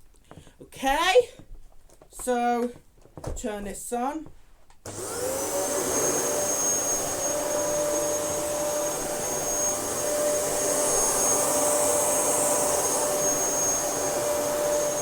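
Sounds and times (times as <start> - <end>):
vacuum cleaner motor whine: 4.9 - 15.0.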